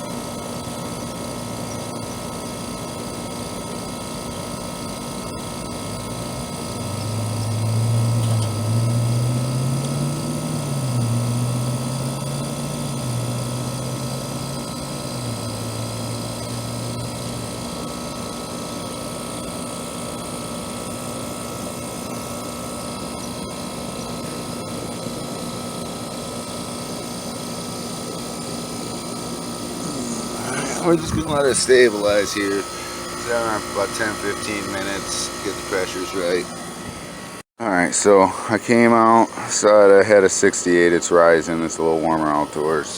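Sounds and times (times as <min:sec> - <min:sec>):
air conditioner unit running: 0:00.0 - 0:42.9
low wavering droning tone: 0:00.9 - 0:18.1, 0:28.0 - 0:37.4.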